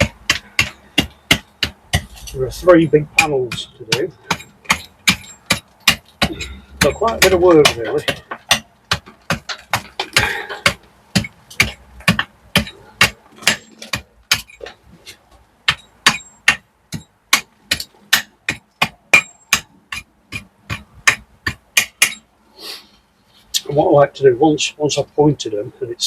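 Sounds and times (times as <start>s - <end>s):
hammer chipping mortar: 0.0s - 14.8s, 15.7s - 22.2s.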